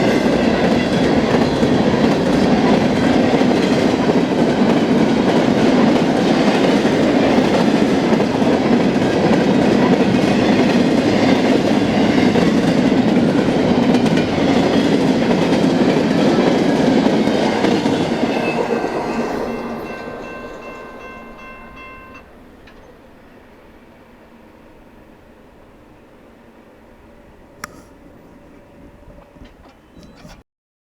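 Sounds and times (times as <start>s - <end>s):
train wheels clacking on rails: 0.0s - 23.4s.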